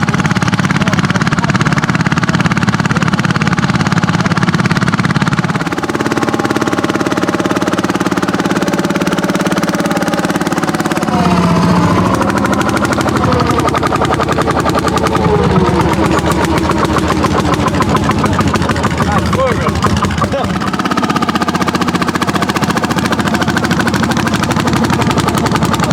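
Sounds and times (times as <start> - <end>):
tractor engines running hard: 0.0 - 25.9.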